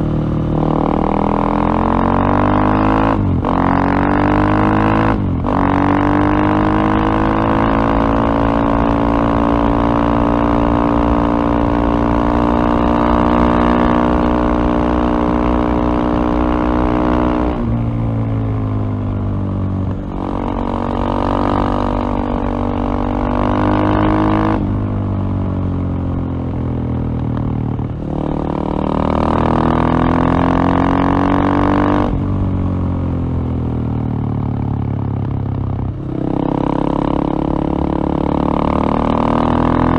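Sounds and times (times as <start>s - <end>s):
motorcycle engine running under load: 0.0s - 39.9s.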